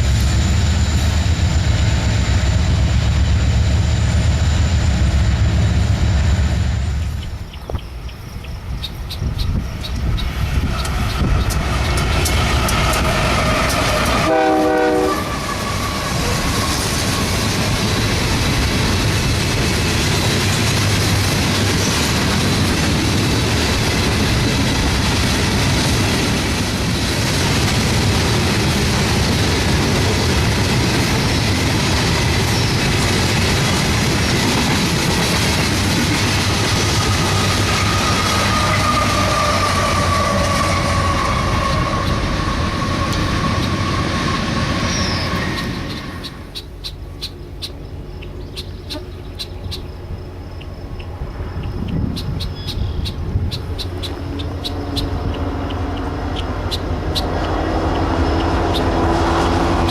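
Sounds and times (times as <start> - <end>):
freight train wheels clattering: 8.8 - 49.6
train horn: 12.7 - 17.3, 37.2 - 45.6, 57.4 - 59.9.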